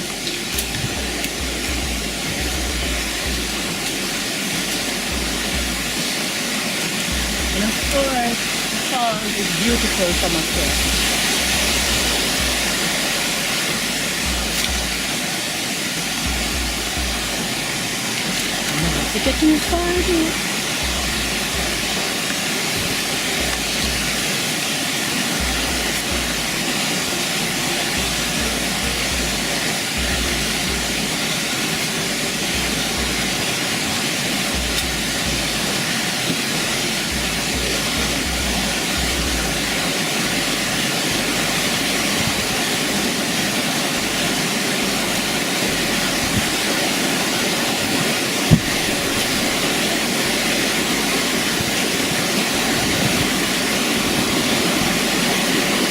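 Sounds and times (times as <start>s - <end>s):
low rumble: 0.0s - 6.2s, 7.0s - 15.3s, 16.0s - 24.3s
waterfall rushing: 0.0s - 55.9s.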